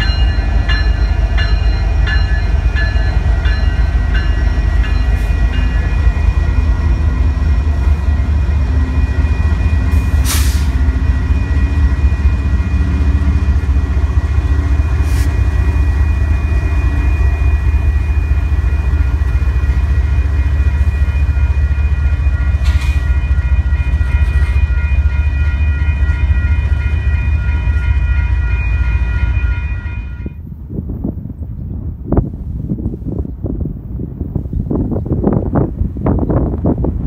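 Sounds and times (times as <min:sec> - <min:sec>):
crossing bell ringing: 0:00.0 - 0:10.1, 0:15.6 - 0:30.4
train rumbling on rails: 0:00.0 - 0:37.0
wind on microphone: 0:30.2 - 0:37.0.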